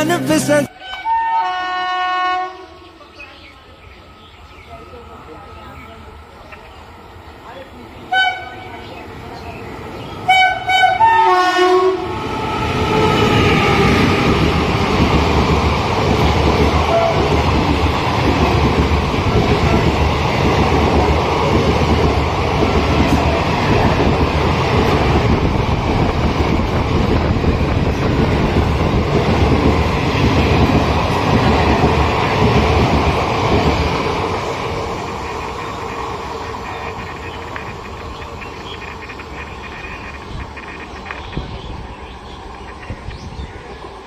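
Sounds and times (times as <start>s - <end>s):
train passing at speed: 0.0s - 44.0s.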